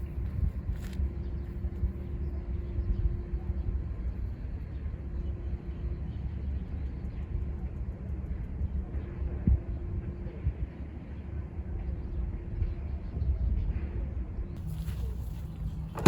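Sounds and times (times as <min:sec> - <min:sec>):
car road and engine rumble: 0:14.6 - 0:16.0.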